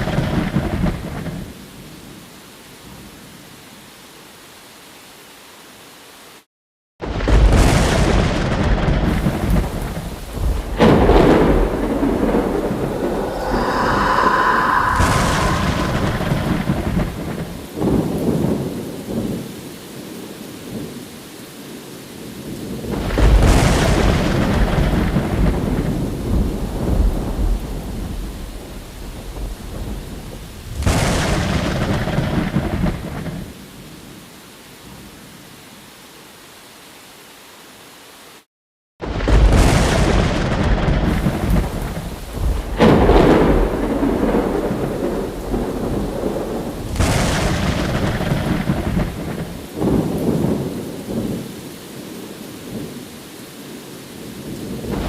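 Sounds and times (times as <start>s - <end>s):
thunder rolling: 0.0s - 1.5s, 7.0s - 18.7s, 22.9s - 28.4s, 39.0s - 51.4s, 54.8s - 55.0s
steady rain-like hiss: 0.0s - 6.5s, 7.2s - 38.5s, 39.3s - 55.0s
rain hissing: 9.0s - 19.4s, 41.1s - 52.9s.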